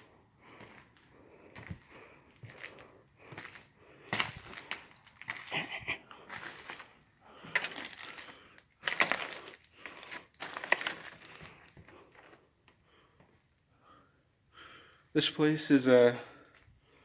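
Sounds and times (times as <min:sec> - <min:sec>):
footsteps crunching over debris: 0:00.0 - 0:12.4.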